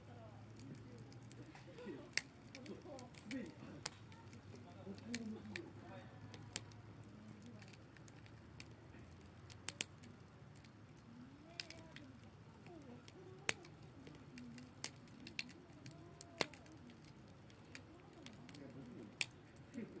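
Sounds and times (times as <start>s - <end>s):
campfire crackling: 0.0s - 20.0s
sharp fire pops: 0.1s - 20.0s.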